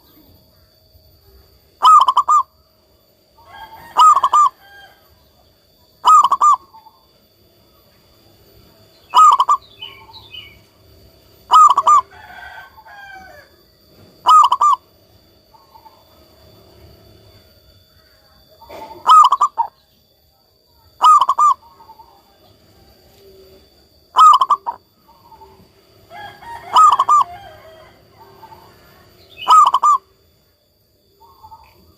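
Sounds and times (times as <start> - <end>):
small birds chirping: 0.0 - 12.8, 13.9 - 31.9
dove cooing: 1.8 - 2.6, 3.4 - 5.0, 6.0 - 7.1, 9.1 - 10.6, 11.4 - 13.3, 14.1 - 16.4, 18.4 - 19.9, 20.9 - 30.3, 31.1 - 31.9.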